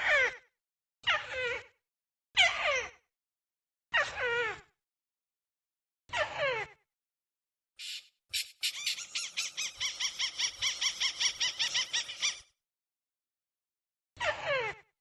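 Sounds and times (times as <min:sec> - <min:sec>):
crake calling: 0:07.8 - 0:11.0.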